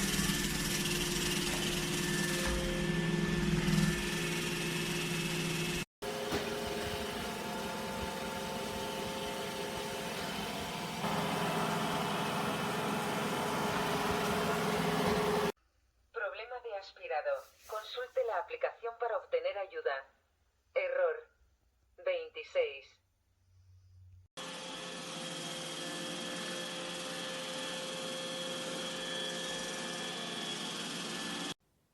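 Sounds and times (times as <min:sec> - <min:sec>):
robot vacuum motor hum: 0:06.0 - 0:15.6.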